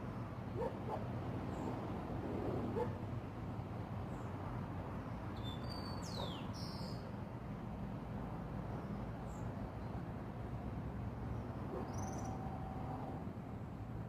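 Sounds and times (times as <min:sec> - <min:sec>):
bird chirping: 0:05.4 - 0:07.0.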